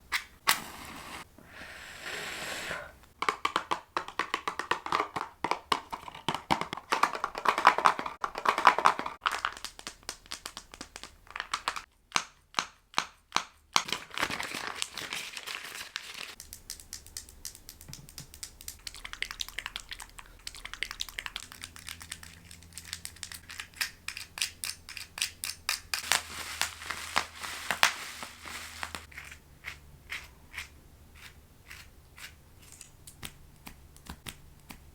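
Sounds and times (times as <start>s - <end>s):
clicks and taps on small objects: 3.2s - 13.9s, 16.3s - 26.1s, 29.0s - 34.9s.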